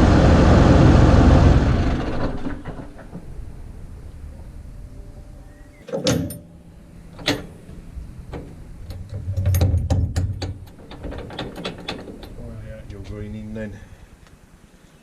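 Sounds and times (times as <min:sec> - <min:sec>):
low rumble: 0:00.0 - 0:05.8
sharp metallic clunks: 0:05.8 - 0:12.4
clicks and knocks: 0:07.1 - 0:12.4.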